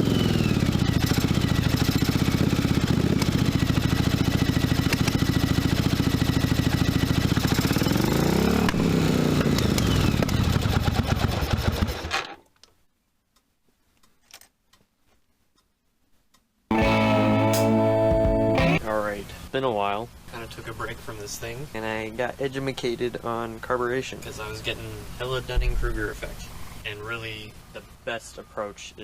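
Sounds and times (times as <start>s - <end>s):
motorcycle engine running and revving: 0.0s - 12.1s.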